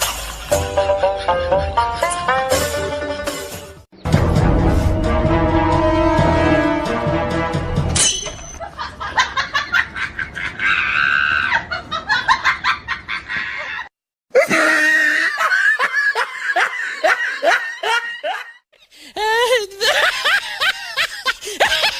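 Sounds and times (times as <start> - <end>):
music: 0.2 - 8.0
high-pitched laughing: 19.2 - 21.9.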